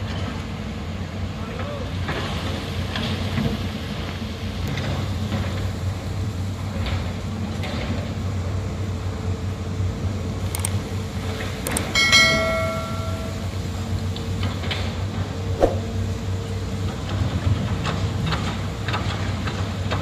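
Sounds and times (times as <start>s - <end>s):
diesel engine humming: 5.2s - 18.9s.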